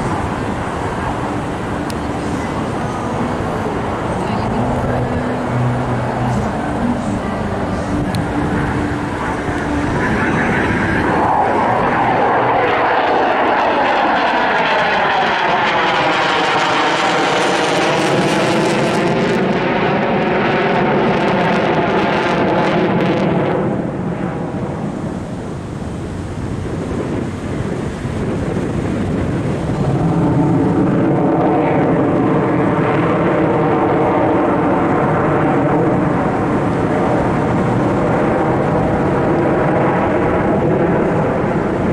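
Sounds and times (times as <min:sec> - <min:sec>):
airplane engine passing: 0:00.0 - 0:41.9.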